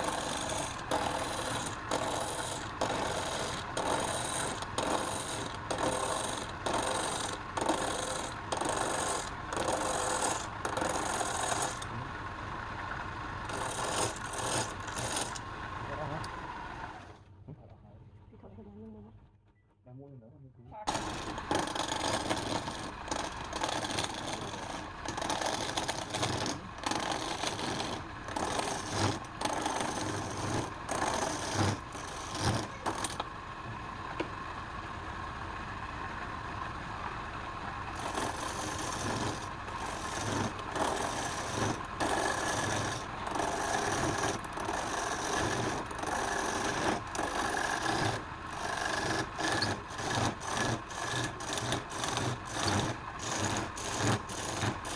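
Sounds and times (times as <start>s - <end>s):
tool rasping on wood: 0.0s - 11.9s, 13.4s - 15.4s, 20.9s - 33.2s, 38.0s - 54.9s.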